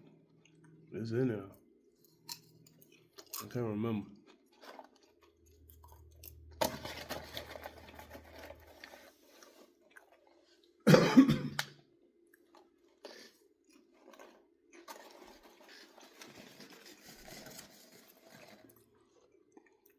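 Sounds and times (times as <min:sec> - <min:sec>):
person chewing popcorn: 0:00.0 - 0:00.9, 0:01.6 - 0:10.9, 0:11.6 - 0:19.9
cough: 0:10.8 - 0:11.8.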